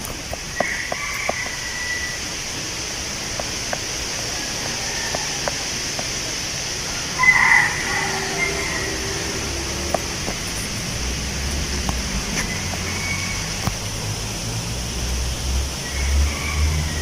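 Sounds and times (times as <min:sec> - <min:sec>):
wind rustling tree leaves: 0:00.0 - 0:17.0
high-pitched call: 0:07.2 - 0:10.7
light ticks: 0:11.5 - 0:12.9.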